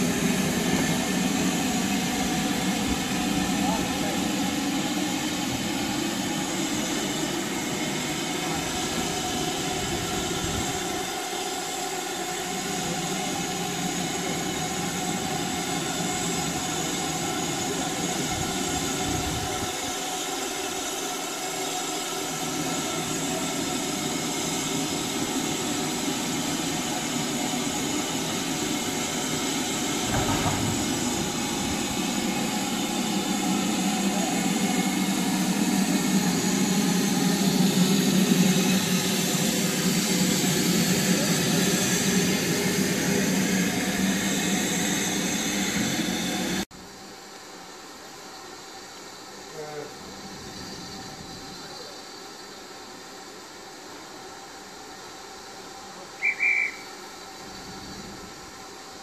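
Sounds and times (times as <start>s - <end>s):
train rumbling along rails: 0.0s - 46.7s, 56.2s - 59.0s
thud: 30.0s - 31.2s.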